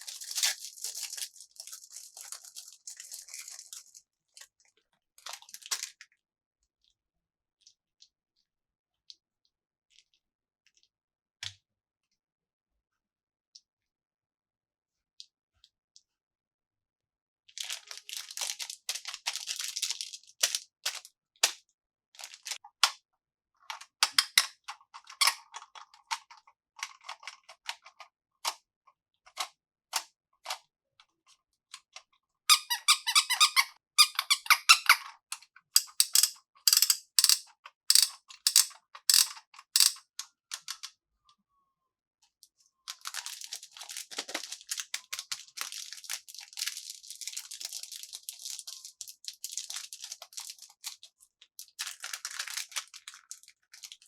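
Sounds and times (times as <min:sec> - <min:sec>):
plastic packaging crinkling: 0:00.0 - 0:04.0, 0:42.9 - 0:51.0, 0:51.8 - 0:54.0
sharp clicks: 0:35.8 - 0:40.0.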